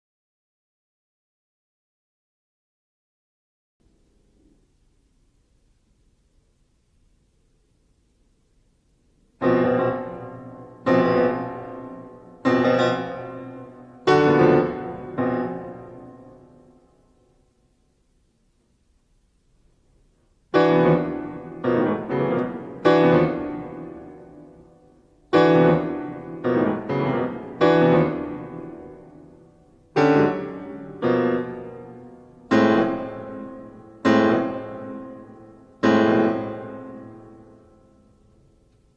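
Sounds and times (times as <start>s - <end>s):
piano chords: 9.4s - 17.1s, 20.5s - 38.7s.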